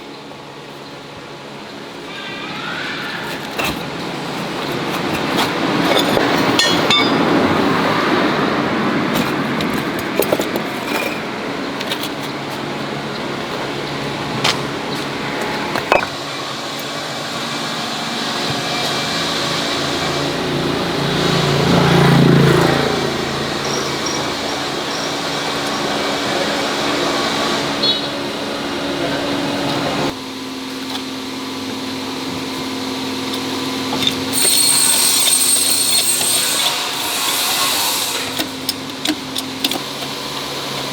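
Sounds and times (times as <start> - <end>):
vehicle engine running: 3.4 - 34.0
short metallic knocks: 5.3 - 7.4, 15.5 - 16.2.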